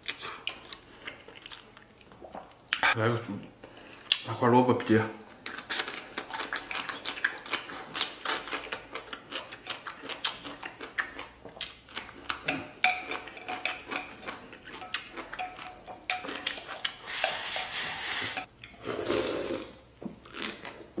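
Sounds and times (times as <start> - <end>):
wet chewing and mouth clicks: 5.3 - 17.4
utensils clinking against bowl: 12.4 - 18.5.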